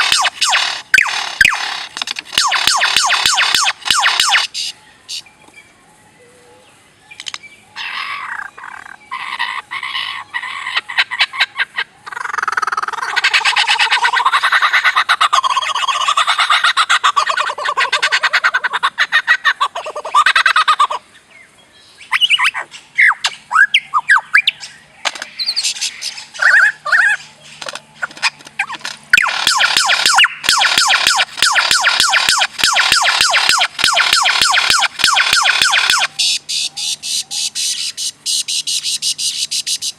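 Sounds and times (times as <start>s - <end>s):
bird buzzing rattles: 0.0s - 4.7s
bird whistled notes: 29.2s - 39.9s.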